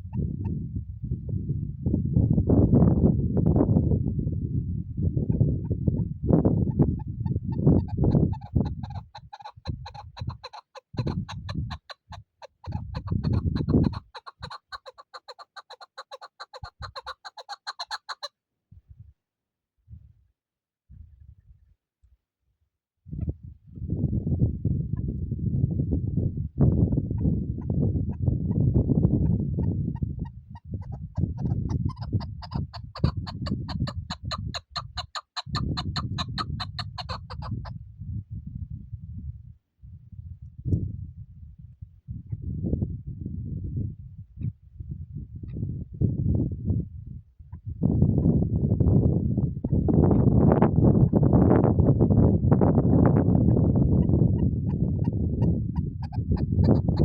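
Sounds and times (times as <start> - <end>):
partridge clucking calls: 6.7 - 18.3, 29.9 - 37.7, 55.8 - 57.0.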